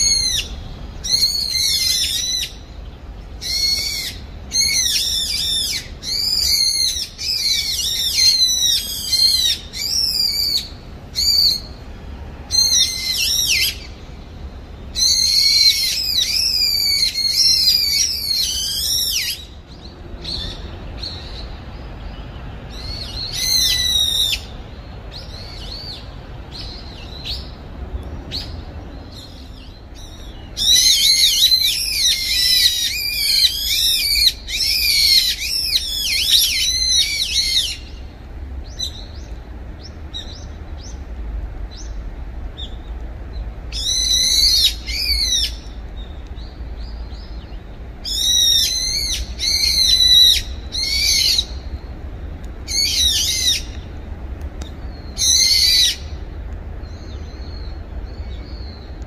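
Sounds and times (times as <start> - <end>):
bird shrill high calls: 0.0 - 11.8, 12.5 - 14.1, 14.8 - 21.6, 22.7 - 27.6, 28.3 - 38.1, 43.7 - 45.8, 46.4 - 51.8, 52.7 - 53.8, 54.8 - 56.2.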